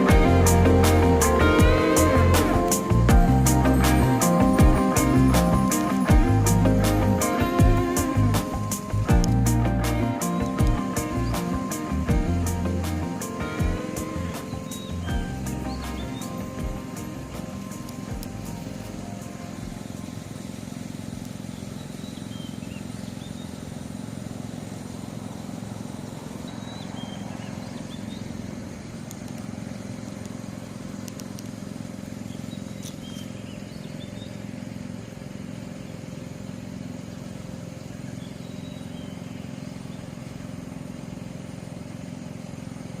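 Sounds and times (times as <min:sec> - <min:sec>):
low mechanical hum: 0:00.0 - 0:43.0.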